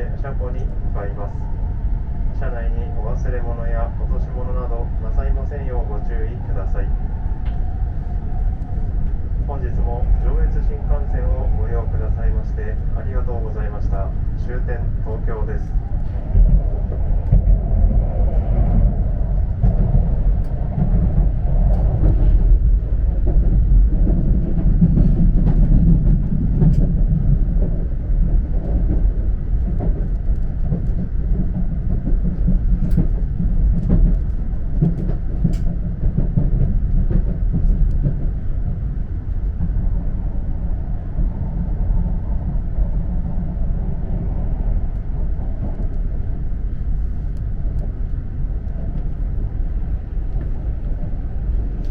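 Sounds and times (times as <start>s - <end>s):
train running rumble: 0.0s - 51.9s.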